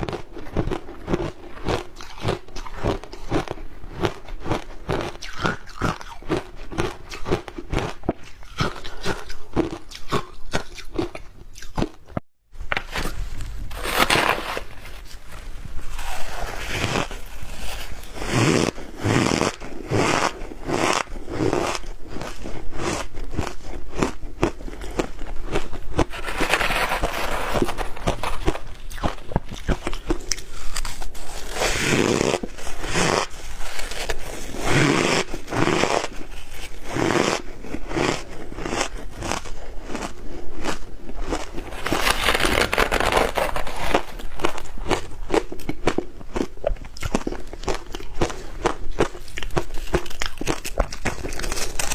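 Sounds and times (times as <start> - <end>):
ice being crunched: 13.7 - 15.1, 41.3 - 44.7, 49.5 - 51.9.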